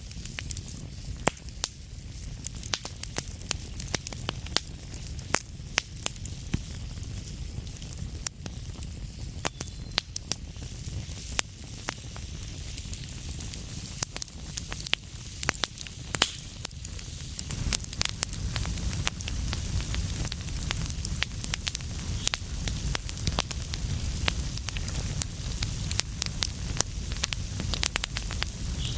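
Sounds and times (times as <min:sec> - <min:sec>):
fire crackling and popping: 0:00.0 - 0:28.9
flames rumbling and hissing: 0:00.0 - 0:28.9.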